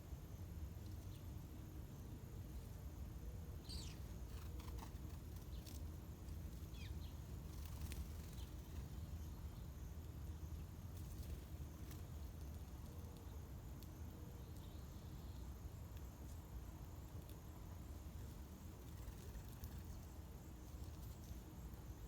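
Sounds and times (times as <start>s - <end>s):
faint bird chirps: 3.5s - 5.9s, 6.5s - 15.6s, 18.2s - 22.0s.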